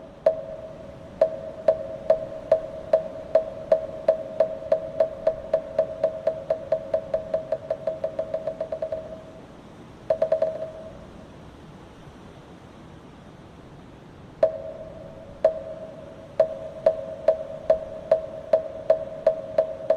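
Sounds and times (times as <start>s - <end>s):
wooden temple block strikes: 0.3s - 9.3s, 10.1s - 11.0s, 14.4s - 19.9s.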